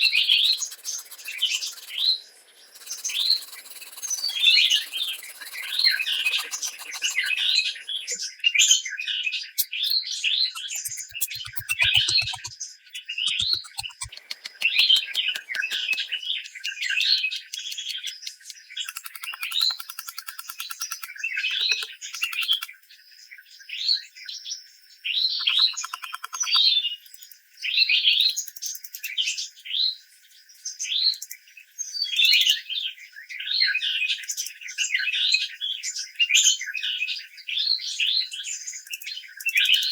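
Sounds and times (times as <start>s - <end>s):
songbird chirping: 0.0s - 29.6s
faint clicks: 10.6s - 12.5s, 13.3s - 16.2s, 17.6s - 22.7s, 25.5s - 26.6s.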